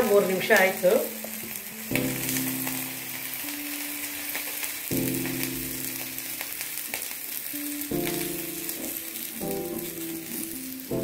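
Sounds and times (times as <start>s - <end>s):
flatbread sizzling in oil: 0.0s - 11.0s
soft background music: 0.0s - 11.0s.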